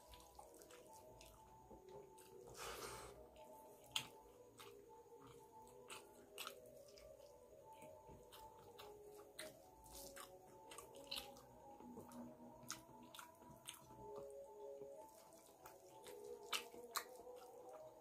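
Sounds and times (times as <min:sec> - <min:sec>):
chewing and mouth clicks: 0:00.0 - 0:18.0.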